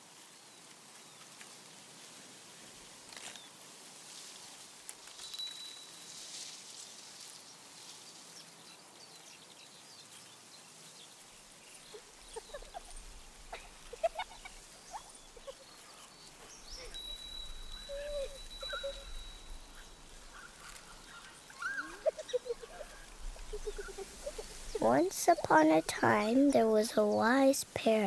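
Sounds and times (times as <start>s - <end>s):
small birds chirping: 7.3s - 28.0s.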